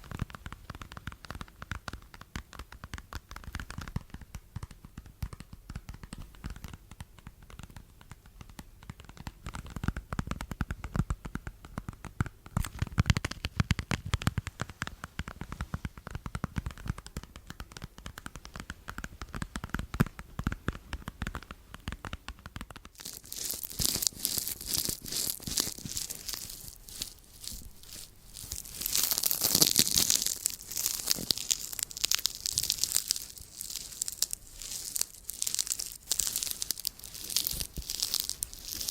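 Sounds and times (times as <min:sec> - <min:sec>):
scratchy rubbing and tapping: 0:00.0 - 0:38.9
crisp crinkling and tearing: 0:22.8 - 0:38.9.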